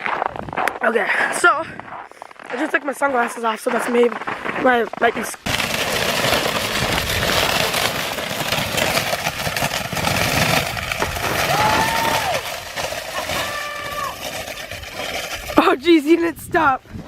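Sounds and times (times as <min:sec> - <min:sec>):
skis crunching and scraping on snow: 0:00.0 - 0:17.0.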